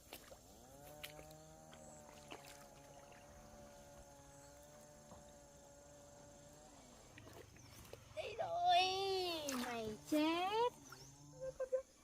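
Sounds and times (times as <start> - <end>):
faint motor drone: 0.0 - 12.0.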